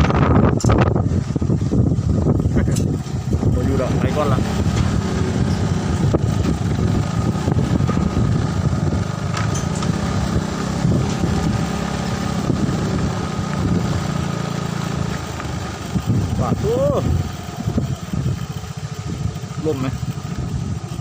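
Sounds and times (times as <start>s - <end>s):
wind buffeting microphone: 0.0s - 21.0s
small engine idling: 1.2s - 21.0s.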